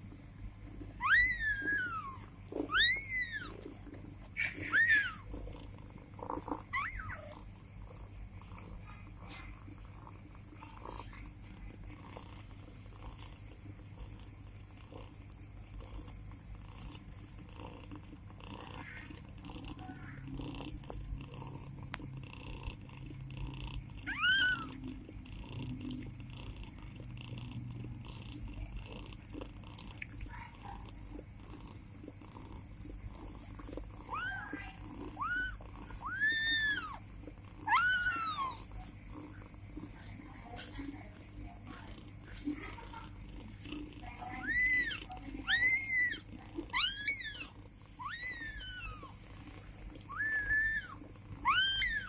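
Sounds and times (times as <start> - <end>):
cat purring: 0.0 - 52.0
kitten mewing: 1.0 - 5.5, 6.4 - 7.5, 24.0 - 25.1, 33.7 - 38.9, 42.4 - 49.2, 50.0 - 52.0
kittens suckling clicks: 1.0 - 52.0.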